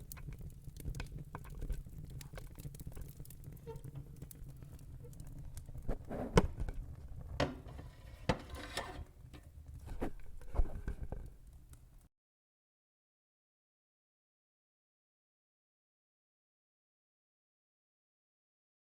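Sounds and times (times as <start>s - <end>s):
wood fire crackling and popping: 0.0s - 12.1s.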